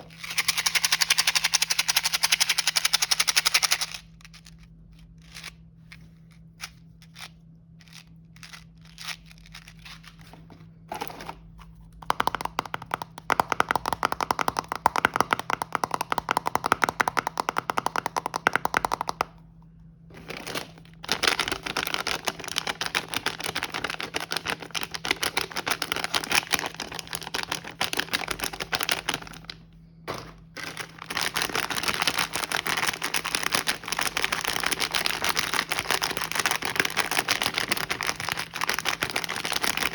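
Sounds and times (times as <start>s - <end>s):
taps on packaging: 12.0s - 19.4s
packaging crinkling and rustling: 20.1s - 39.9s.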